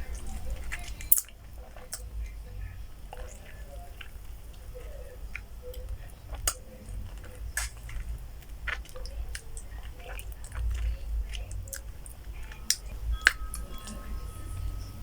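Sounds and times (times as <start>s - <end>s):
mouth clicks and smacks: 0.0s - 14.2s
person chewing and biting: 0.0s - 15.0s.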